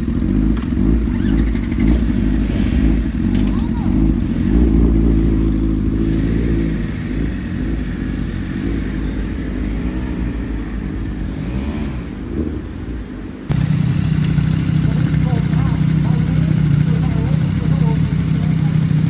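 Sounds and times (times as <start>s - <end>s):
motorcycle engine accelerating: 0.0s - 19.0s
steady engine: 0.0s - 19.0s.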